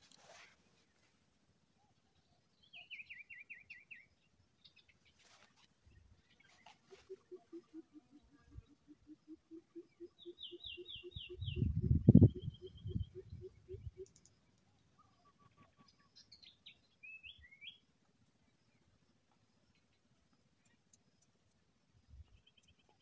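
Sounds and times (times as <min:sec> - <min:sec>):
forest birds calling: 0:02.1 - 0:17.8.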